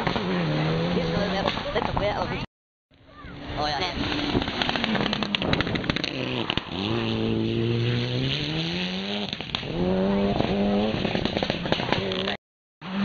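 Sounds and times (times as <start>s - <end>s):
engine crackles: 3.3s - 13.0s
rally car engine accelerating: 3.8s - 13.0s.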